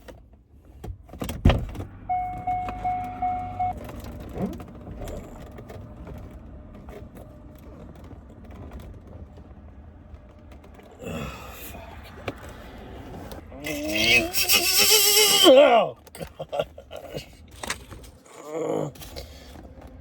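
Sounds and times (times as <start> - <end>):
thump inside car: 1.1 - 3.7
low steady hum: 1.7 - 13.8
car warning chime beeping: 1.9 - 4.0.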